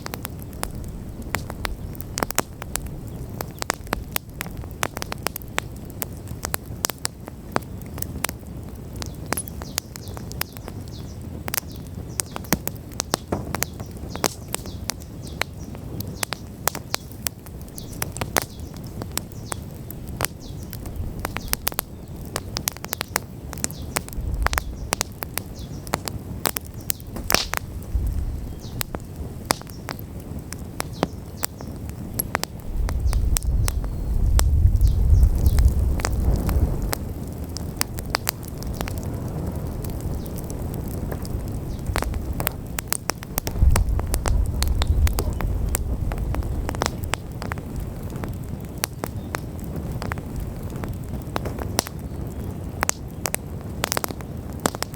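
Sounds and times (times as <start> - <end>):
bonfire crackling and popping: 0.0 - 54.9
low rumble: 24.2 - 25.0, 27.0 - 29.0, 43.3 - 47.4.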